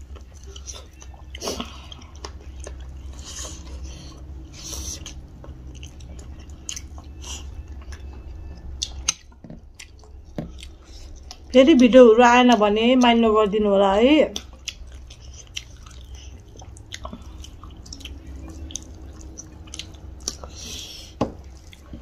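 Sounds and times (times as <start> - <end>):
people chewing food: 0.0 - 13.2, 14.1 - 22.0
low steady hum: 0.0 - 22.0.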